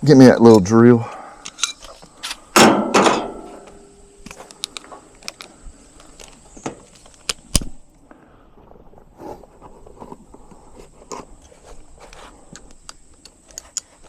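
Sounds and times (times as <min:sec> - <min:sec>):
tools clattering: 0:01.5 - 0:03.8
sharp knock: 0:02.6 - 0:03.6.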